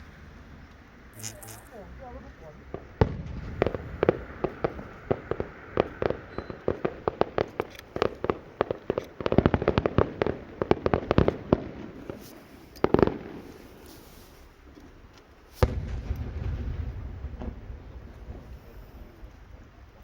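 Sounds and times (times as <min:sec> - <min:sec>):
low rumbling noise: 0:00.0 - 0:07.3
fireworks cracks and bangs: 0:01.2 - 0:20.0.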